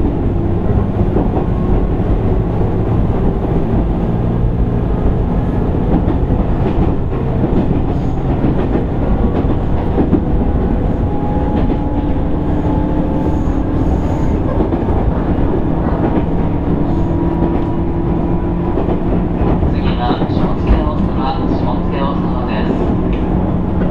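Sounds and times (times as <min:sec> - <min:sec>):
wheels rumbling on rail: 0:00.0 - 0:23.9.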